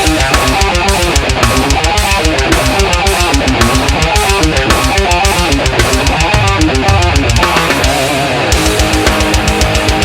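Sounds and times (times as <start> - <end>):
distorted electric guitar riff: 0.0 - 10.0.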